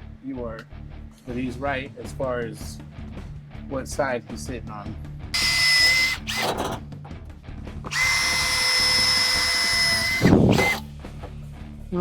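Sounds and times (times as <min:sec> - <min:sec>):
electric drill boring metal: 0:05.4 - 0:06.8, 0:07.9 - 0:10.9.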